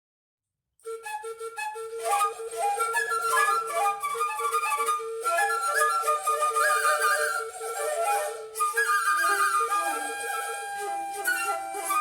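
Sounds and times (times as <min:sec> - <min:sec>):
flutes improvising: 0:00.9 - 0:12.0.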